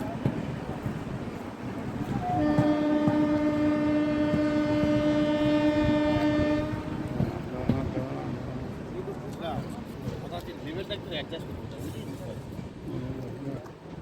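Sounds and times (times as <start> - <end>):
train rumble and clatter: 0.0 - 14.0
train horn blast: 2.1 - 7.5.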